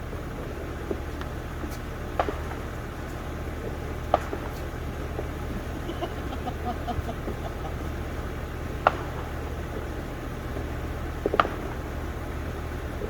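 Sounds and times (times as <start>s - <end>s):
faint crackles: 0.0s - 13.0s
steady low hum: 0.0s - 13.0s
distant firework pop: 8.8s - 9.4s.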